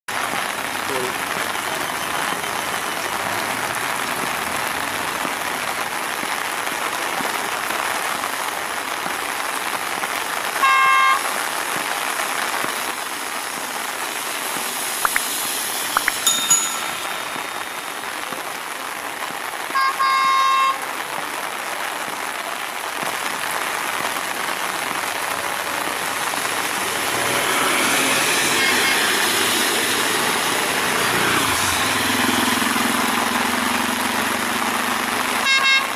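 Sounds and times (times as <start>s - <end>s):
heavy rain hissing: 0.1s - 35.9s
train running noise: 14.5s - 18.5s.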